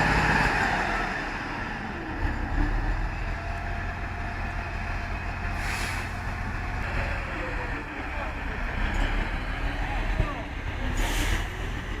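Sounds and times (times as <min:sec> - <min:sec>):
truck engine rumbling: 0:00.0 - 0:12.0
brief air hiss: 0:05.6 - 0:06.2, 0:11.0 - 0:11.5.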